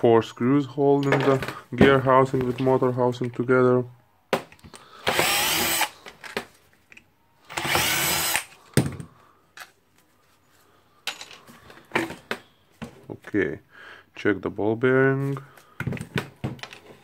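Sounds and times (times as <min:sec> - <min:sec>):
power screwdriver whirring: 0:05.0 - 0:06.0, 0:07.5 - 0:08.5.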